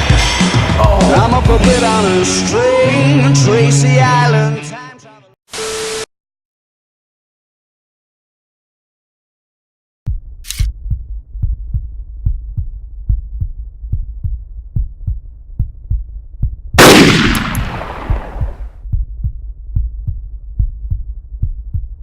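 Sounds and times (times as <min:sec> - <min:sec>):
heartbeat-like thudding pulse: 0:10.1 - 0:22.0
crashing boom: 0:16.8 - 0:18.7.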